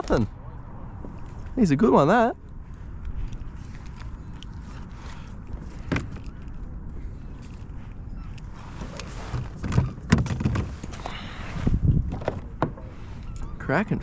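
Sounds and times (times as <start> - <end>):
wind on microphone: 2.6 - 14.0
knocks and thuds on kayak: 9.4 - 10.8, 12.1 - 12.9.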